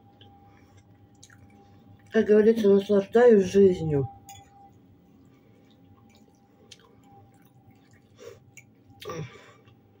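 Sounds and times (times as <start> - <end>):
closed-mouth chewing: 0.1 - 2.2, 5.2 - 9.8.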